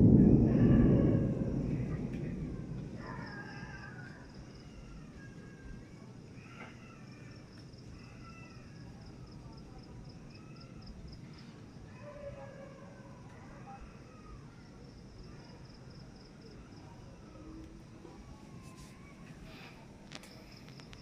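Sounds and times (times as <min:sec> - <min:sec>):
low continuous rumble: 0:00.0 - 0:06.4
insect chirping: 0:00.3 - 0:12.4, 0:13.8 - 0:17.6, 0:20.1 - 0:21.0.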